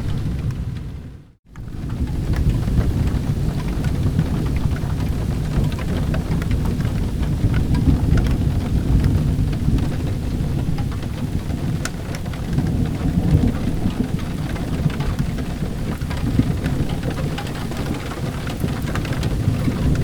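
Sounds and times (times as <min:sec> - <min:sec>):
low thunder rumble: 0:00.0 - 0:20.0
steady rain: 0:00.0 - 0:20.0.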